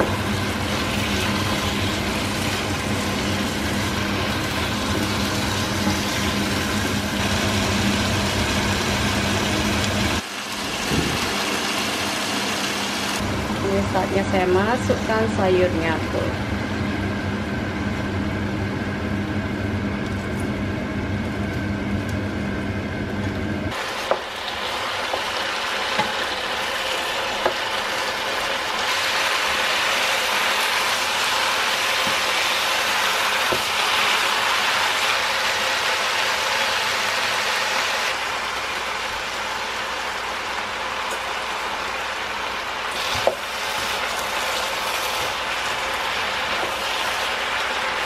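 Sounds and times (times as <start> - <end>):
food sizzling in a skillet: 23.7 - 48.0.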